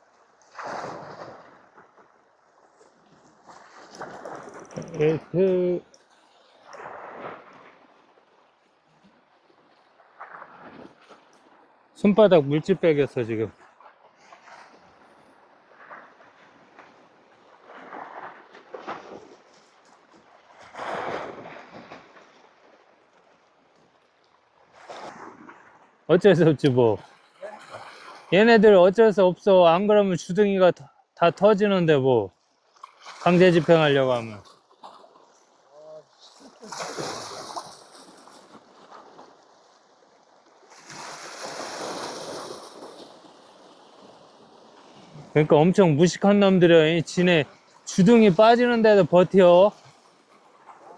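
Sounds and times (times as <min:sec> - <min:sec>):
sea waves washing against rocks: 0:00.2 - 0:08.4, 0:32.9 - 0:34.5, 0:36.1 - 0:50.9.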